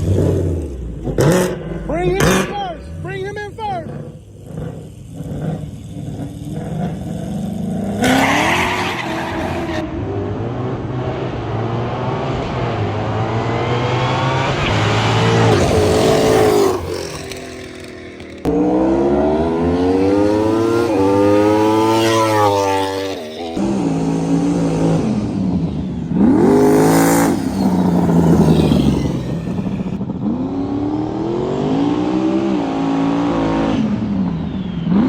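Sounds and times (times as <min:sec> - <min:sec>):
race cars accelerating hard: 0:00.0 - 0:35.0
tyre squeal: 0:27.1 - 0:30.0.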